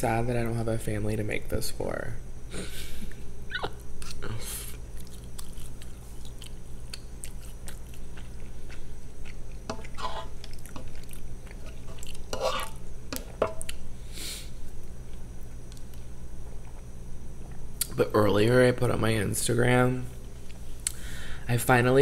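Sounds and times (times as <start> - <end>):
person chewing food: 3.6 - 13.9, 15.0 - 17.9.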